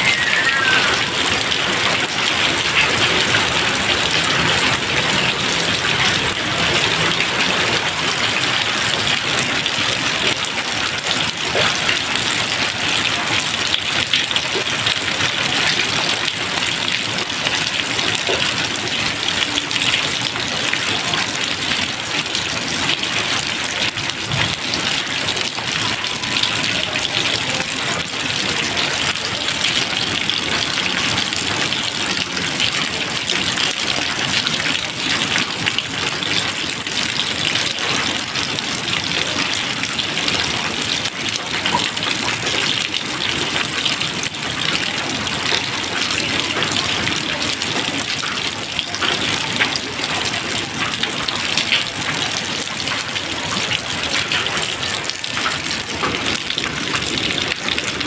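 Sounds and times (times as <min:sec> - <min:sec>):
steady dense rain: 0:00.0 - 0:58.0.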